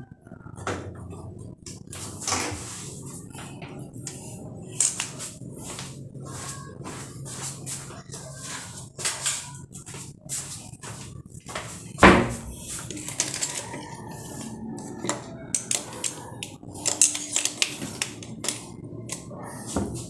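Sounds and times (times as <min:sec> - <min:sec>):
tools and metal parts clinking: 0:04.7 - 0:05.3, 0:12.2 - 0:19.2.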